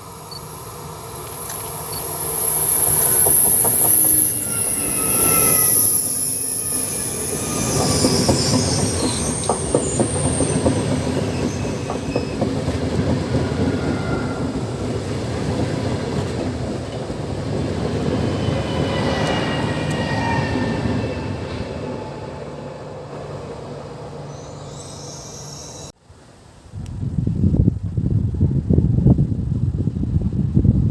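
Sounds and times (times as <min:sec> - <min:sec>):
thin wheel squeals: 0:01.8 - 0:12.5, 0:18.2 - 0:22.3, 0:24.2 - 0:25.9
train wheels clattering over rail joints: 0:07.6 - 0:20.0.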